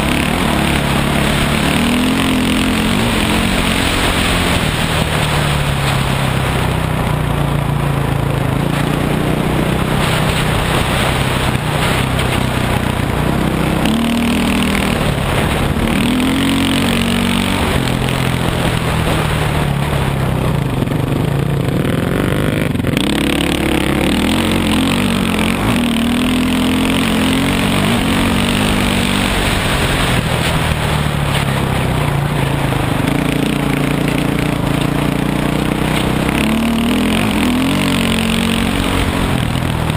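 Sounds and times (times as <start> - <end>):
constant rushing noise: 0.0 - 39.9
dirt bike engine revving: 0.0 - 39.9.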